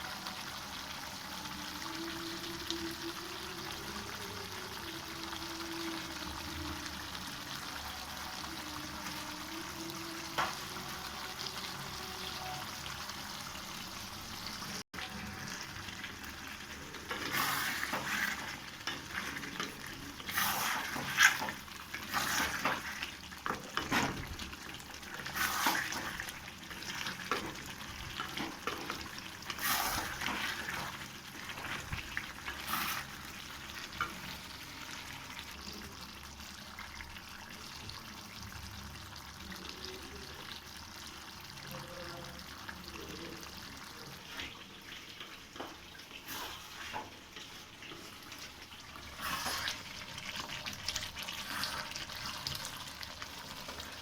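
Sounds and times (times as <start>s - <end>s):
curry sizzling in a pan: 0.0s - 54.0s
spatula scraping a pan: 16.9s - 24.4s, 25.1s - 34.6s, 46.1s - 50.4s, 51.2s - 52.8s.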